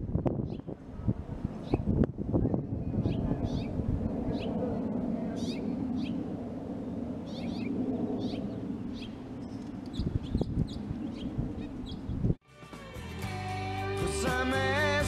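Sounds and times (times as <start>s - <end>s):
birds chirping: 2.9s - 4.6s, 5.3s - 6.3s, 7.2s - 12.3s.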